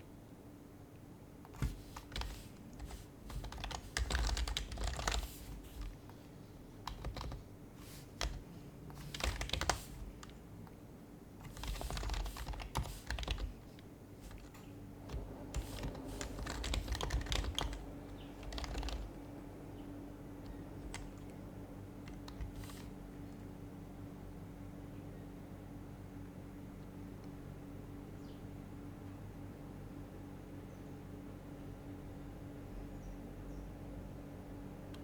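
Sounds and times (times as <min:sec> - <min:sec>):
keyboard typing muffled clicks: 0:01.5 - 0:06.2, 0:06.8 - 0:10.4, 0:11.4 - 0:19.2, 0:20.4 - 0:21.4, 0:22.1 - 0:23.0.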